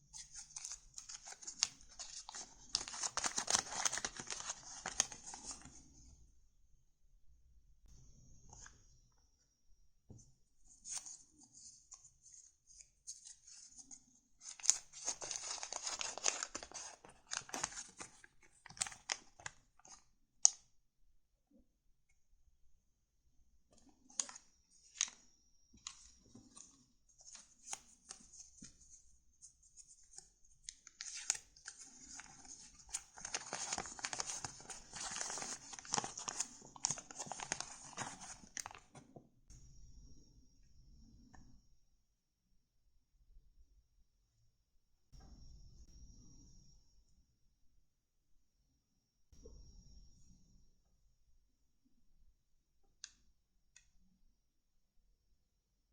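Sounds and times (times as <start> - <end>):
paper rustling and crinkling: 0.2 - 5.7, 13.1 - 20.0, 29.8 - 39.0.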